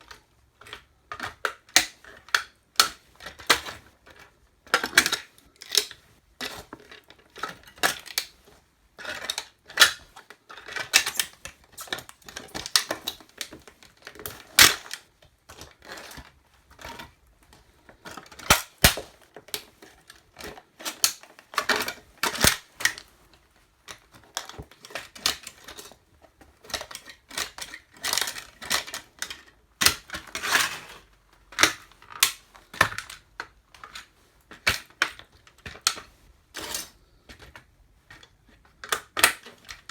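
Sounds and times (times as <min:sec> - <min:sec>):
plastic toy cracking under boots: 0:00.1 - 0:08.4, 0:09.0 - 0:17.2, 0:18.0 - 0:23.1, 0:23.9 - 0:25.9, 0:26.6 - 0:39.9.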